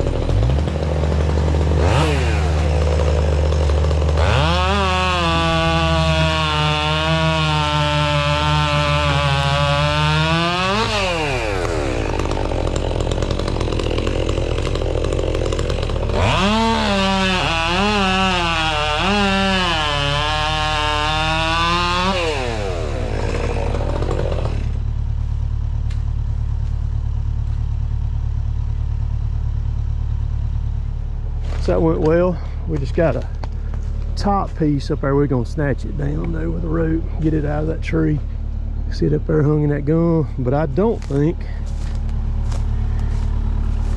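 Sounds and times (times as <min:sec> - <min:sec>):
chainsaw revving and cutting wood: 0:00.0 - 0:43.9
low engine drone: 0:21.8 - 0:43.9.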